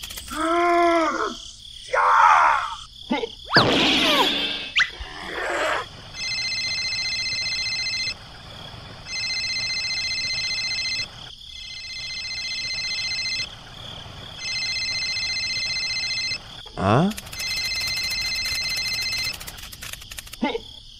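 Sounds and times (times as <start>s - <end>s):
warbling telephone ringtone: 6.2s - 8.2s, 9.0s - 13.5s, 14.4s - 16.4s, 17.3s - 19.4s.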